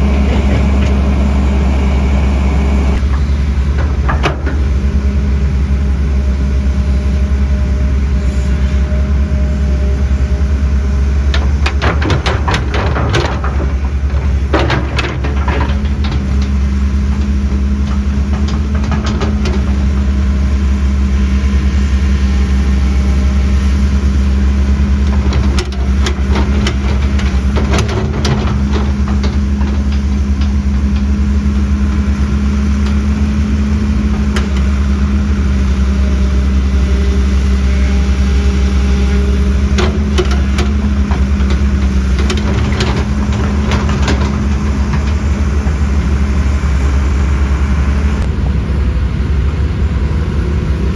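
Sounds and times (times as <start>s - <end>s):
knocks and clanks: 0.0s - 1.9s, 2.9s - 4.8s, 11.2s - 20.7s, 24.6s - 36.5s, 38.9s - 46.8s
diesel engine of heavy machinery: 0.0s - 50.9s.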